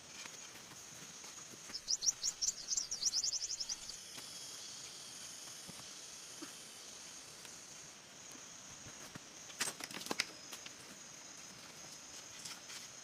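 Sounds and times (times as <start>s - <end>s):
insect drone: 0.0s - 13.0s
bird trilling: 1.7s - 3.9s.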